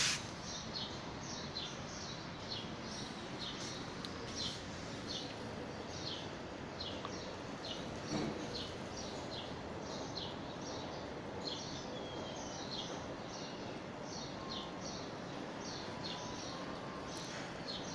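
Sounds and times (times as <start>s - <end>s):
steady hiss: 0.0s - 2.0s
bird chirping: 0.0s - 17.9s.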